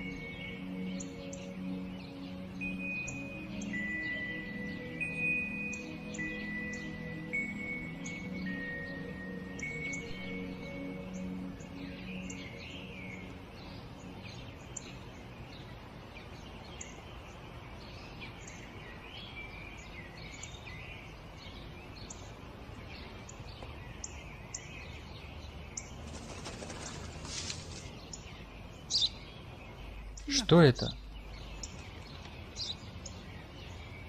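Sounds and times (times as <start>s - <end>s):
small birds chirping: 0.0s - 34.0s
steady outdoor background noise: 0.0s - 34.0s
rustling noise: 26.0s - 28.1s.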